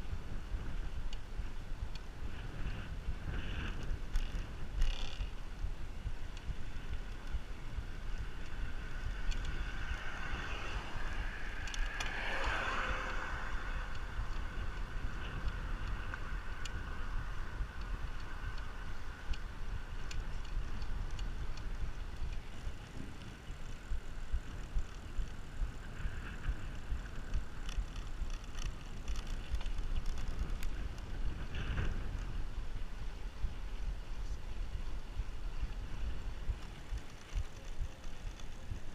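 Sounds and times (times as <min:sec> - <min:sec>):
bicycle road noise: 0:00.0 - 0:38.9
wind buffeting microphone: 0:00.0 - 0:38.9
faint ticks: 0:00.5 - 0:38.9.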